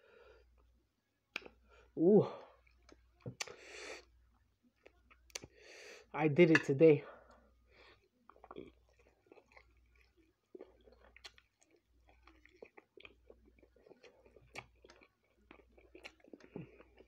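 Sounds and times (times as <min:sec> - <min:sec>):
chewing food with mouth clicks: 0:04.3 - 0:05.6, 0:07.3 - 0:17.0.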